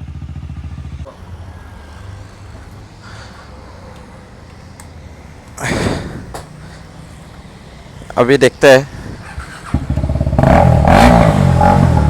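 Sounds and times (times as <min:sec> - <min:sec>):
motorcycle engine firing up: 0:09.2 - 0:12.0.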